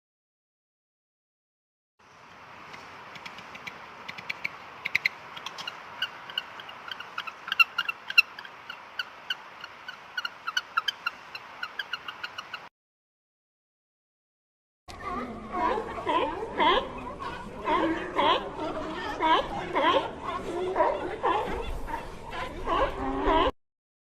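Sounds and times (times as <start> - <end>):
animal chirping calls: 3.2 - 12.7.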